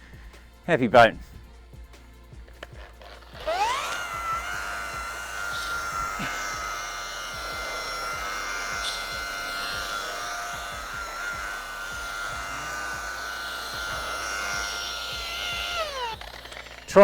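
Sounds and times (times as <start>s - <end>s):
electric polisher motor whine: 2.5s - 17.0s.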